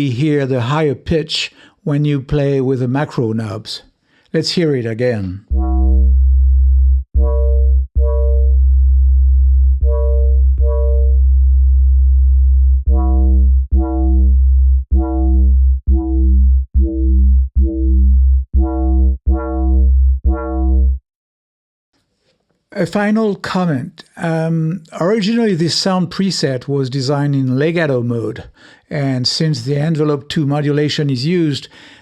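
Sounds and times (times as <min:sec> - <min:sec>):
deep synth bass line: 0:05.4 - 0:21.0
metallic bell-like synth notes: 0:05.5 - 0:06.1, 0:07.2 - 0:08.6, 0:09.8 - 0:11.2, 0:12.9 - 0:14.3.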